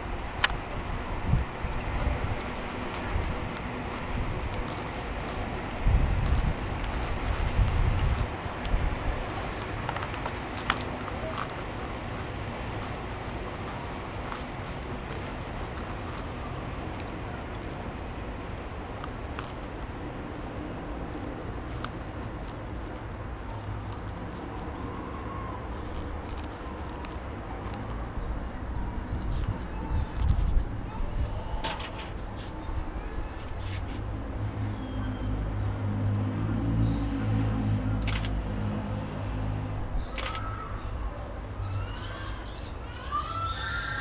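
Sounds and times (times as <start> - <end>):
birds calling: 39.8 - 44.0
short sharp clicks: 40.1 - 40.5.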